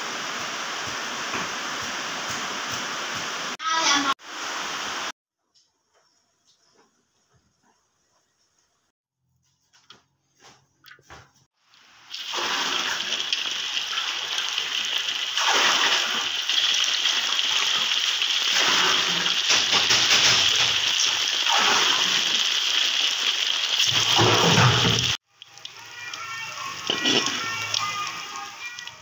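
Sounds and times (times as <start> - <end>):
tofu sizzling in hot oil: 11.7 - 29.0.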